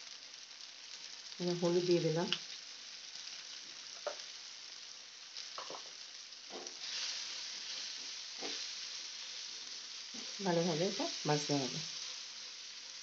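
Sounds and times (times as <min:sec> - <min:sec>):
vegetables sizzling in oil: 0:00.0 - 0:13.0
spatula scraping pan: 0:06.5 - 0:09.4.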